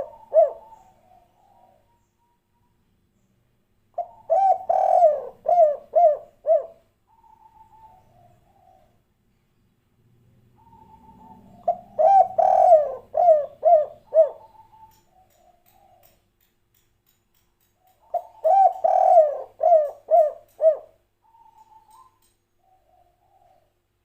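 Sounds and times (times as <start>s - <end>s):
dove cooing: 0.0s - 2.0s, 4.0s - 9.0s, 10.5s - 16.1s, 18.0s - 23.8s.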